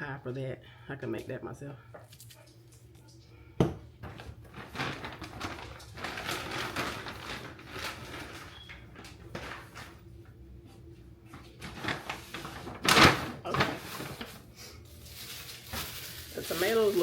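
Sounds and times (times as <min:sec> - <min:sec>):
packaging rustling and knocking: 0:03.6 - 0:10.0, 0:11.3 - 0:14.4.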